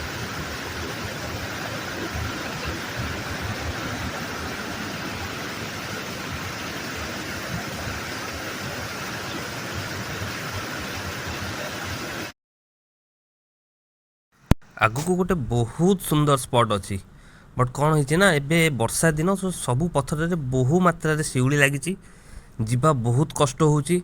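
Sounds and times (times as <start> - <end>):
waterfall rushing: 0.0 - 12.3.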